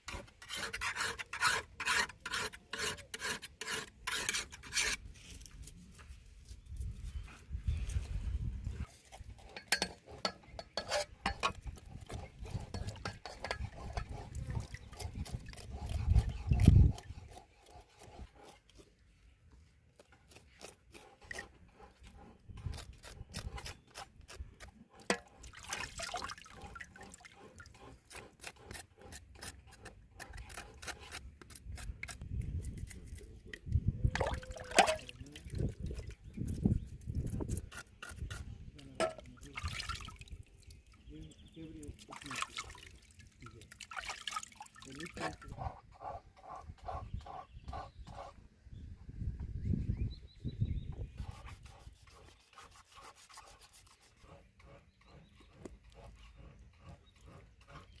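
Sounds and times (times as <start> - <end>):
hands scraping in water: 8.9 - 17.4
small splashes: 25.4 - 27.4, 39.2 - 40.9, 41.9 - 45.4.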